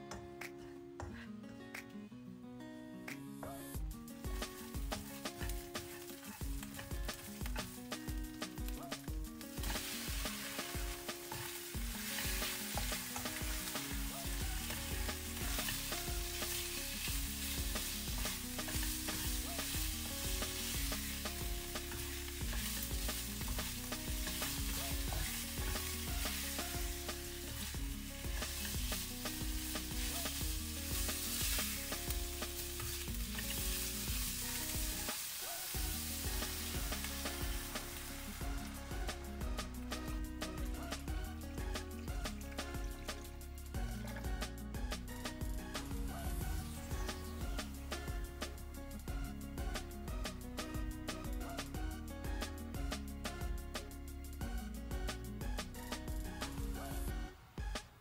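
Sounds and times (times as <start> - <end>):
spatula stirring in wok: 9.5 - 38.6
meat sizzling in hot oil: 9.5 - 39.6.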